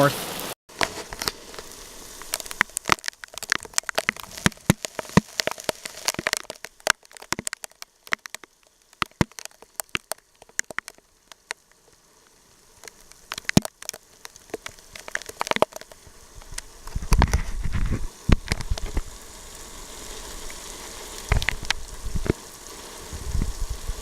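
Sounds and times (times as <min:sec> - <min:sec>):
raindrops tapping on car roof: 0:01.1 - 0:11.7, 0:12.8 - 0:17.4, 0:18.2 - 0:19.1, 0:21.2 - 0:22.4.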